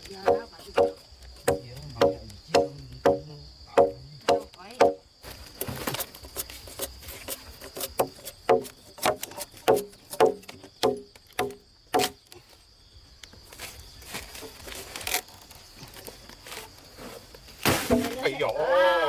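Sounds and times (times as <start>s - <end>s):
hand tool striking wood: 0.0s - 5.0s, 6.4s - 12.3s, 17.6s - 18.2s
high insect whine: 0.0s - 19.0s
rustling scrape: 5.2s - 9.9s, 13.5s - 18.2s.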